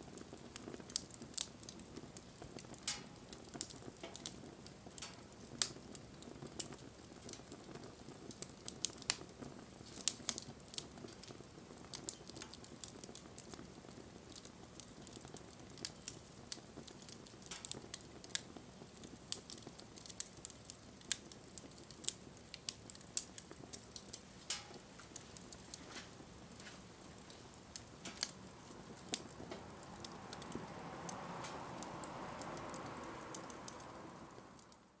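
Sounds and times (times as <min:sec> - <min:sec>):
faint steady hiss: 0:00.0 - 0:35.0
wood fire crackling and popping: 0:00.0 - 0:35.0
soft rushing sound: 0:29.3 - 0:34.6.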